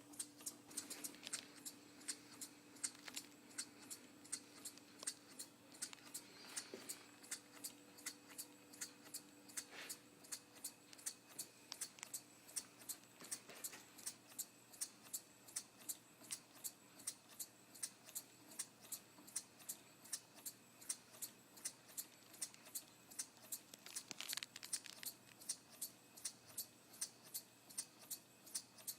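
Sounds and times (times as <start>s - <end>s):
model beam engine clicking: 14.0s - 28.9s.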